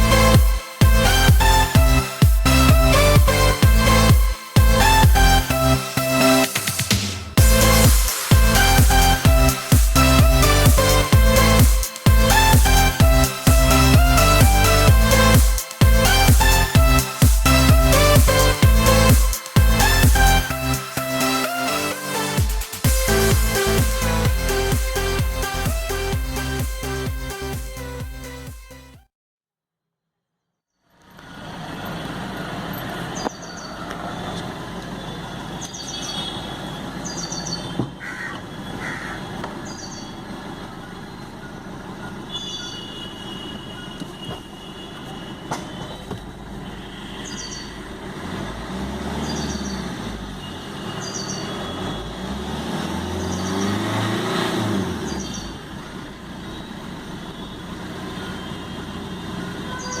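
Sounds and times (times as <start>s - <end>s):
diesel engine idling and revving: 0.0s - 29.0s, 31.2s - 60.0s.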